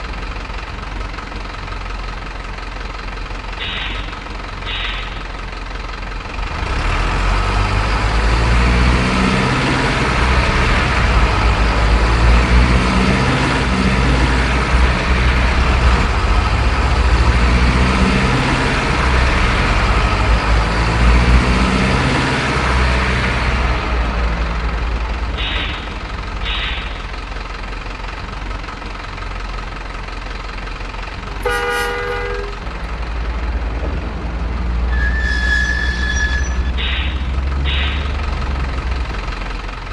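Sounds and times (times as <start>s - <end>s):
short high toots: 25.4s - 27.1s
horn blast: 31.4s - 32.6s.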